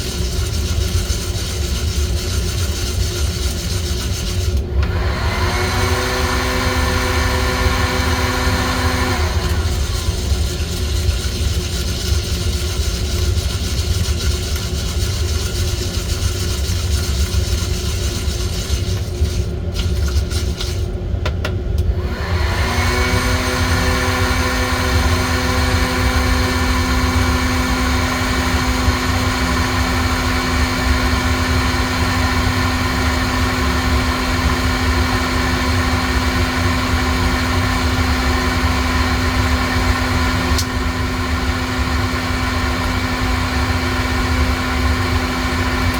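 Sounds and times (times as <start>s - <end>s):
small electric motors whirring: 0.0s - 20.9s.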